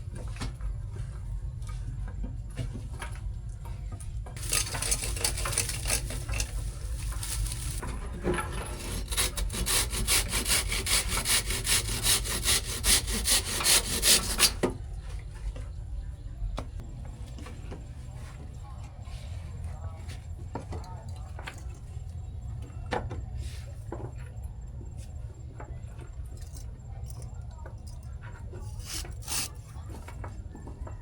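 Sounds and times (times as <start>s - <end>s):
continuous scraping: 4.2s - 14.7s, 25.0s - 31.0s
rhythmic rasping strokes: 4.4s - 7.9s, 8.7s - 14.6s, 28.7s - 29.6s.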